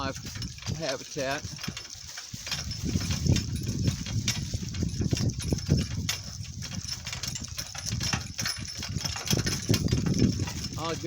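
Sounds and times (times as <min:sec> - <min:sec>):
cart knocking and rattling: 0:00.0 - 0:11.0
donkey hooves clopping: 0:00.0 - 0:11.0.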